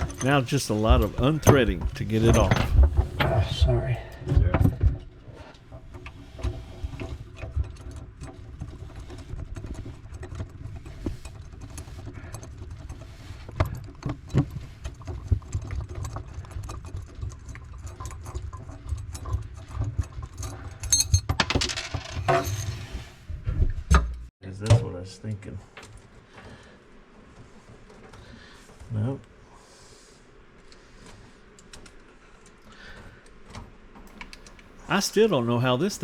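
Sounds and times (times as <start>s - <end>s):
handling noise: 0.0s - 3.4s.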